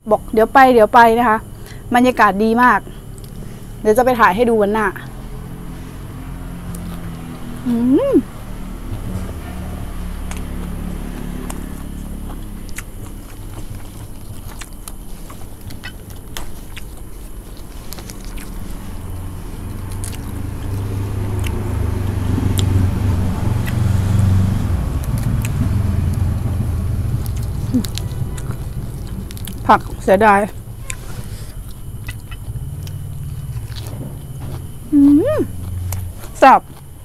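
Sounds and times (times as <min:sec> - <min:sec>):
chewing crispy spring rolls: 0:02.8 - 0:37.0
low rumble: 0:16.9 - 0:36.4.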